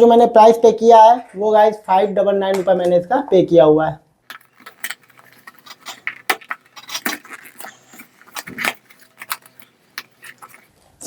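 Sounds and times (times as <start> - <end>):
packaging rustling: 4.3 - 10.7.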